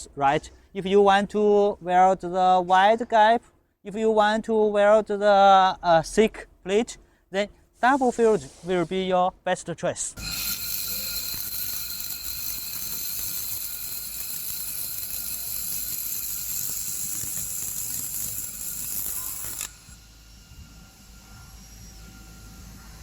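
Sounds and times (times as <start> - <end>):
faint steady tones: 10.2 - 23.0
hissing welding machine: 10.2 - 23.0.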